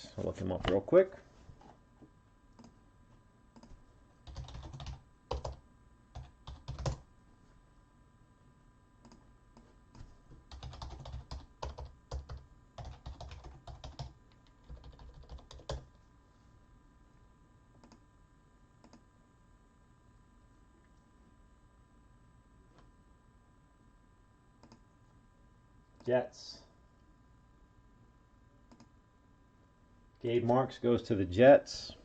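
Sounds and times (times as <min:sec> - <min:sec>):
typing on computer keyboard: 0:03.6 - 0:05.6, 0:06.2 - 0:07.0, 0:10.5 - 0:15.9.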